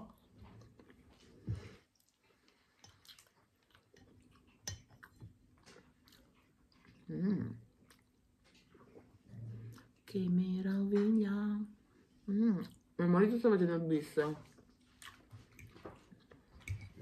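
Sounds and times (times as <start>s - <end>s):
chewing and wet mouth sounds: 0.0s - 11.3s, 14.4s - 17.0s
person humming: 7.1s - 7.6s.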